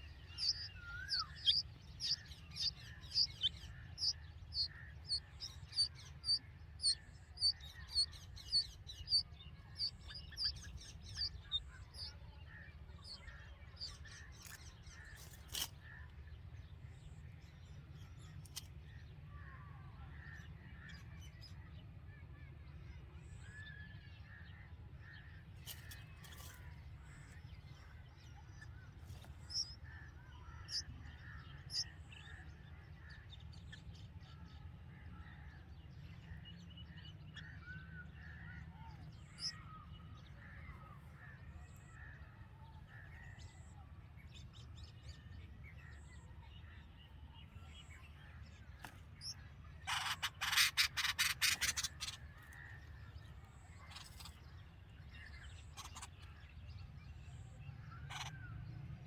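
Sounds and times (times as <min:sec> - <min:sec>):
sharp high bird chirps: 0:00.0 - 0:09.2
birds chirping: 0:00.0 - 0:15.7, 0:25.6 - 0:34.0, 0:36.2 - 0:58.6.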